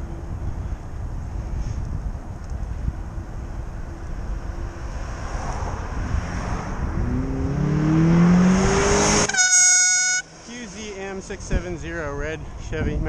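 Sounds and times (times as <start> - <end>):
wind on microphone: 0.0 - 9.2, 11.3 - 13.0
car engine accelerating: 4.3 - 9.4
car horn: 9.1 - 10.4.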